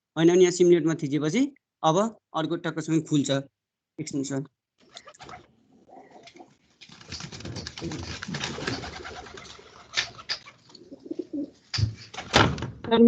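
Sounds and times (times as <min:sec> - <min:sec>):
pigeons cooing: 0:05.0 - 0:06.6, 0:07.2 - 0:11.6.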